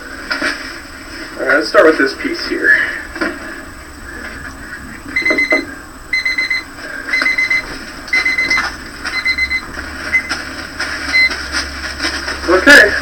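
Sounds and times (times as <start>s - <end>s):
high-pitched beep: 5.1s - 10.4s, 11.1s - 11.4s.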